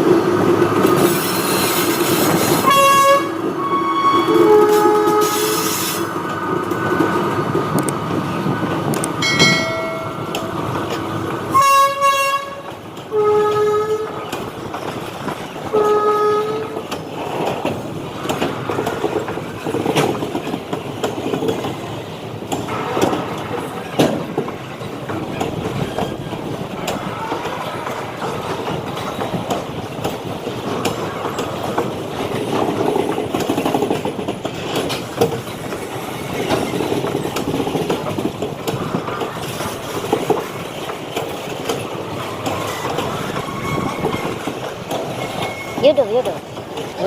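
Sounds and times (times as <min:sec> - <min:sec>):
wheels clattering over rail joints: 0:00.0 - 0:47.0
train horn blasts: 0:02.6 - 0:06.0, 0:11.5 - 0:14.2, 0:15.7 - 0:16.8
rumble of rolling wagons: 0:06.2 - 0:47.0
wheel squeals: 0:42.1 - 0:46.2.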